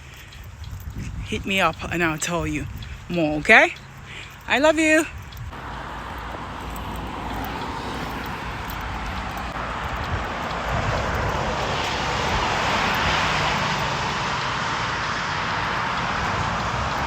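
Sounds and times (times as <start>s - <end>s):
vehicle passing on road: 0.0s - 17.0s.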